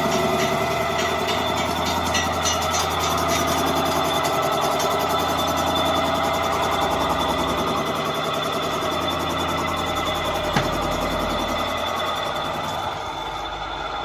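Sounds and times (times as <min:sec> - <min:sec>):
engine humming steadily: 0:00.0 - 0:14.0.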